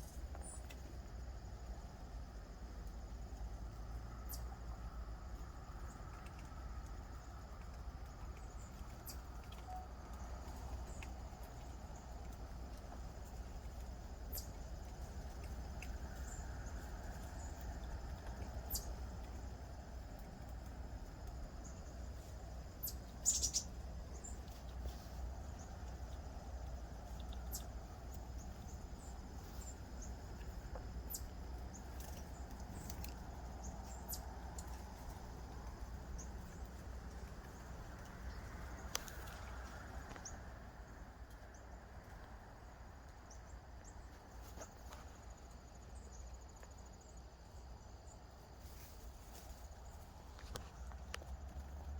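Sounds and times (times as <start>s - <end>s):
insects chirring: 0.0s - 51.9s
bird chirps: 8.4s - 12.1s, 14.3s - 19.4s, 22.7s - 26.2s, 27.0s - 39.3s.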